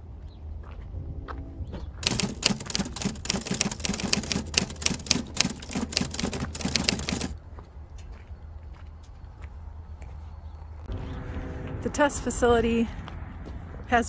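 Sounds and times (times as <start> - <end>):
rapid clicking and clacking: 2.0 - 7.4.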